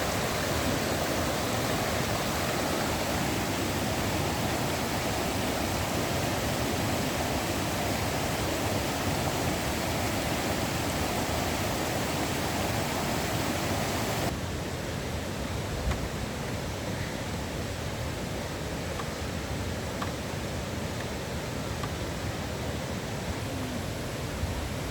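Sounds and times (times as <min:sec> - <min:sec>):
waterfall rushing: 0:00.0 - 0:14.4.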